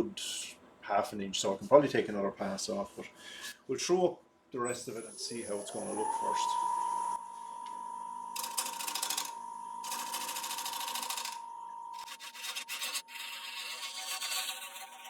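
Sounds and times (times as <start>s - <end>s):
wood lathe whine: 5.3s - 15.0s
gouge scraping spinning wood: 8.4s - 11.4s, 12.0s - 15.0s.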